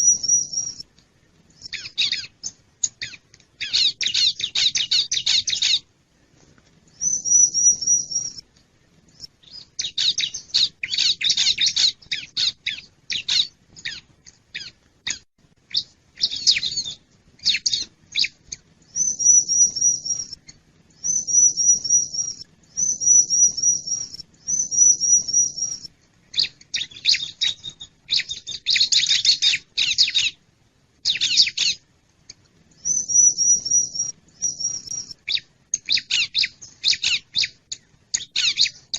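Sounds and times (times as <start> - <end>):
high trilled bird phrases: 0.0 - 0.8, 7.0 - 8.4, 9.4 - 20.4, 21.0 - 30.4, 32.8 - 38.9.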